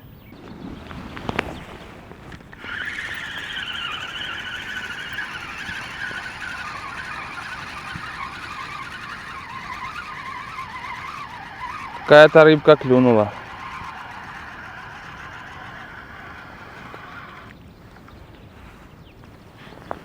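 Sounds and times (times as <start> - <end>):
mechanical whine: 2.3 - 18.2.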